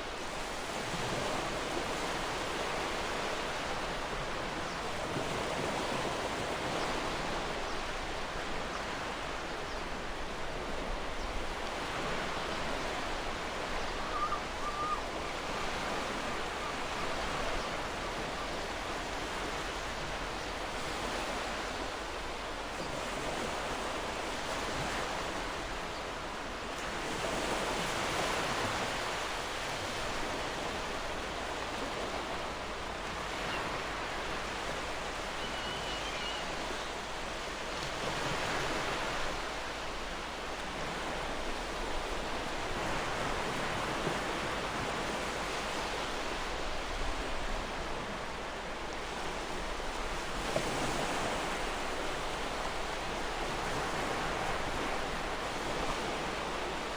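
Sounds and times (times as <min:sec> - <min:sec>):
faint bird chirp: 0:13.8 - 0:15.7, 0:35.1 - 0:37.1.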